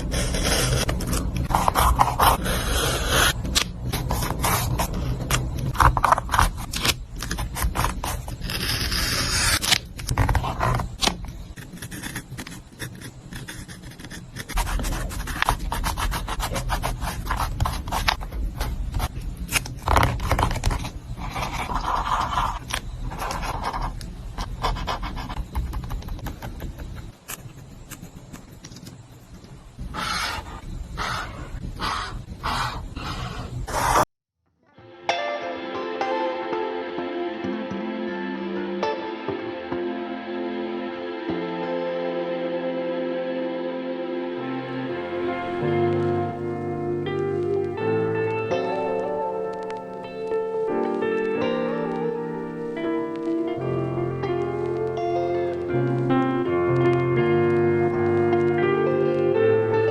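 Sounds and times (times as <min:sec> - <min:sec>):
paper scraping and rubbing: 0:00.0 - 0:29.2, 0:33.0 - 0:34.0.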